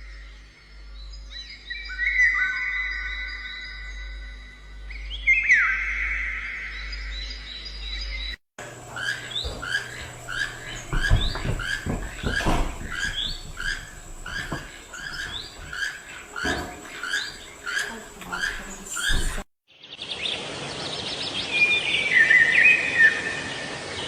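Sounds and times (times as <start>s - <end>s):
small bird chirping: 6.7s - 20.2s
dull thumps: 8.6s - 19.5s.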